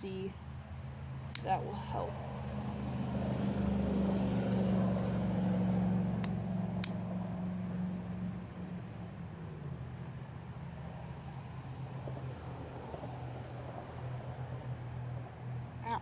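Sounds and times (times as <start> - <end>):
crickets buzzing: 0.0 - 16.0
distant engine droning: 0.0 - 16.0
light clicks: 1.2 - 1.5, 6.2 - 7.1.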